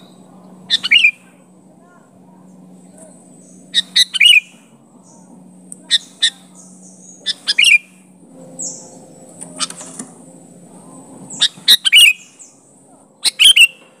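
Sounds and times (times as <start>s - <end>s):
bird giving sharp calls: 0.0s - 1.4s, 3.4s - 4.7s, 5.9s - 8.8s, 11.3s - 12.5s, 13.2s - 13.8s.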